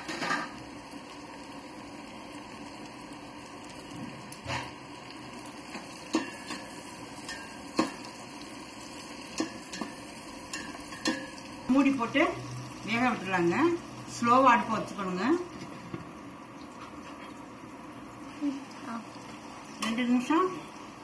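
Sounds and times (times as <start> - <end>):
onions sizzling in oil: 0.0 - 21.0.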